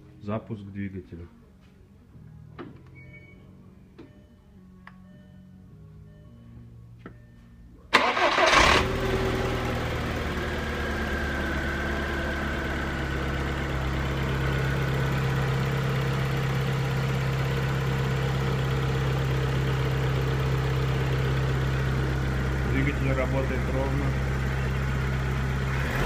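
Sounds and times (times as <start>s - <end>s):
car engine starting and idling: 7.9s - 26.0s.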